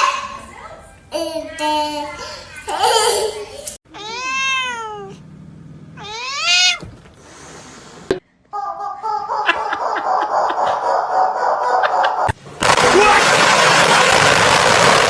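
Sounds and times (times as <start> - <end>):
cat meowing: 3.9 - 5.2, 6.0 - 7.1.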